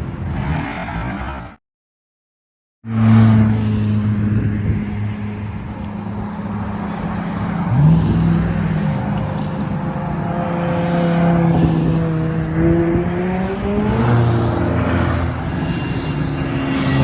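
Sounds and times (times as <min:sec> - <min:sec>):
car engine running hard: 0:04.3 - 0:17.0.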